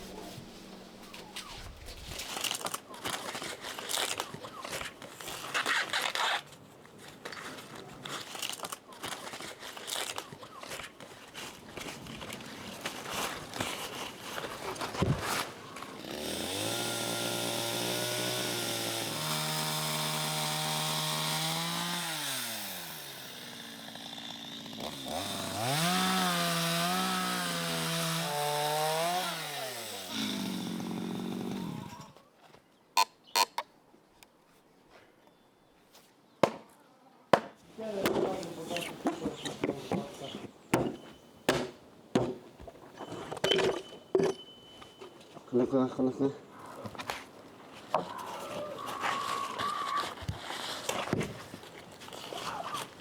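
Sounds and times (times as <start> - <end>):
rustling and handling noises: 0.0 - 16.0, 37.7 - 46.0, 46.6 - 53.0
small engine revving: 16.1 - 23.8, 24.8 - 32.1.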